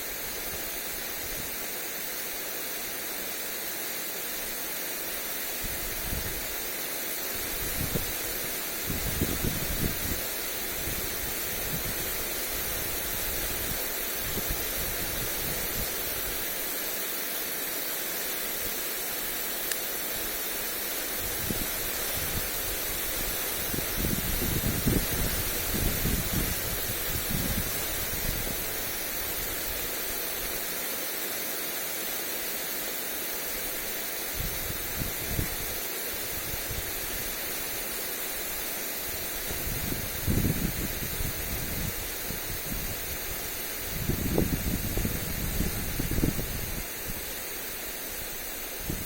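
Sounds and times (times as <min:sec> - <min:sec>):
lawn sprinkler spraying water: 0:00.0 - 0:49.0
wind buffeting microphone: 0:07.4 - 0:16.4, 0:21.2 - 0:28.8, 0:39.2 - 0:47.4, 0:48.8 - 0:49.0.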